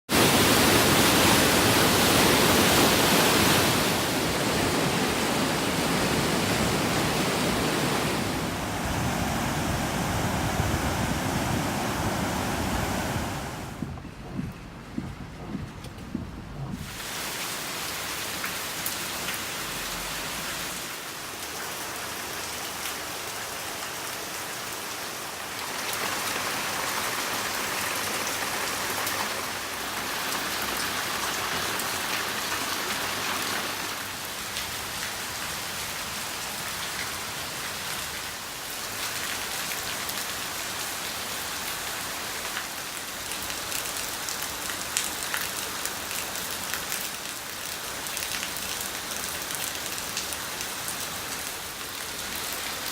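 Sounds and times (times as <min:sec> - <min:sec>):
heavy rain pattering: 0:13.6 - 0:52.9.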